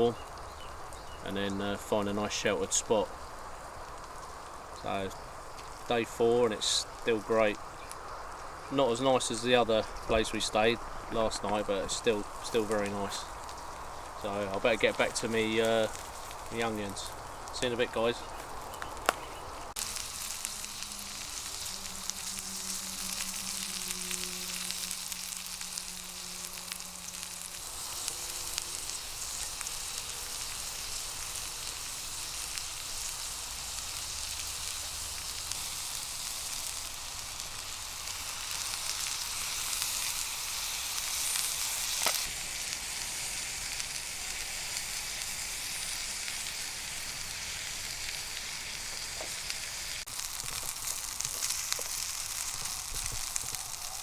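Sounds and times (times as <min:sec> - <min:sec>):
onions sizzling in a pan: 0:00.0 - 0:54.0
low hum: 0:19.7 - 0:29.6.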